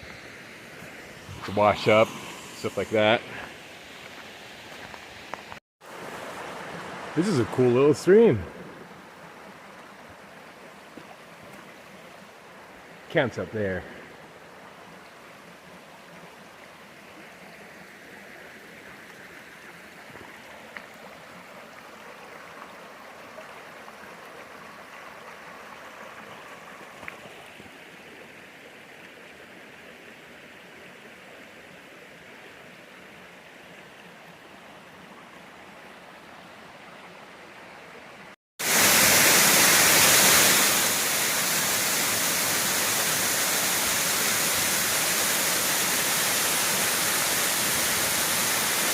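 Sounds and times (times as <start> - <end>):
loud rush of water: 0.0 - 28.4, 38.6 - 48.9
mountain stream running softly: 0.0 - 48.9.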